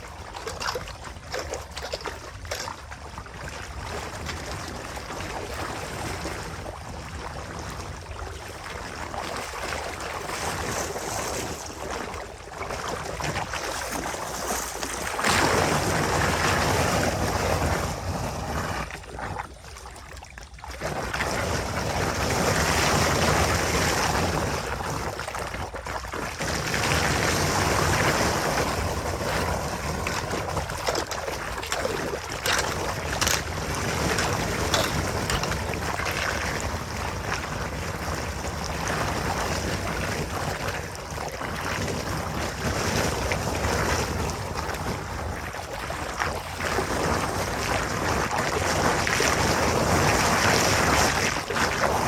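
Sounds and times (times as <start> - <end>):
water rushing: 29.7 - 37.4.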